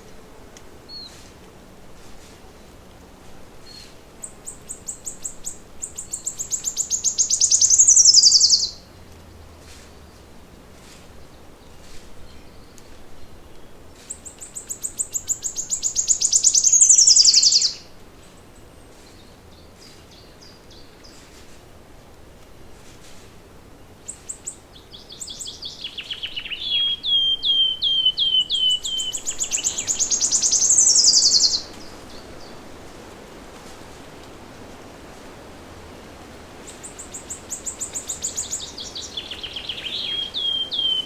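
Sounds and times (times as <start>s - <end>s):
songbird singing: 0.8s - 1.8s, 2.5s - 10.3s, 10.9s - 21.4s, 23.7s - 34.3s, 35.9s - 41.0s
faint bird chirps: 3.6s - 8.8s, 12.3s - 17.8s, 24.1s - 32.6s, 36.7s - 41.0s.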